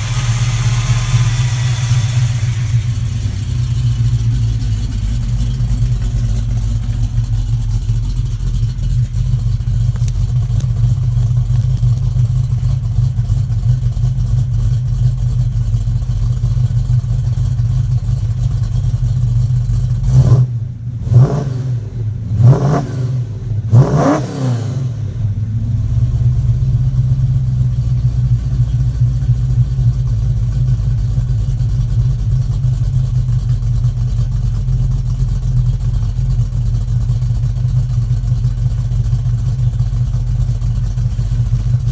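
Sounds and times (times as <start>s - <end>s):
engine revving: 0.0s - 6.2s, 20.0s - 26.6s
lumpy engine idling: 0.0s - 22.5s, 24.9s - 41.9s.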